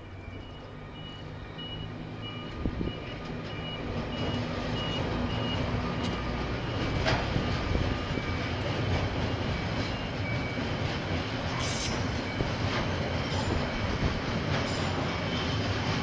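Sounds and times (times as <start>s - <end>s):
two-tone electronic beeping: 0.0s - 6.8s
diesel locomotive engine rumble: 0.0s - 16.0s.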